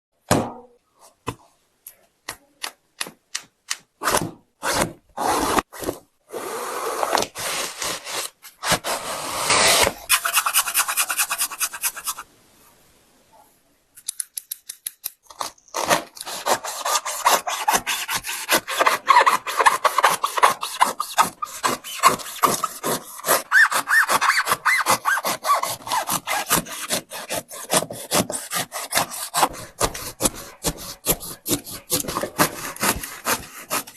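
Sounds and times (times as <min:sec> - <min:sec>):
blade sawing through a shoe: 0:15.9 - 0:33.9.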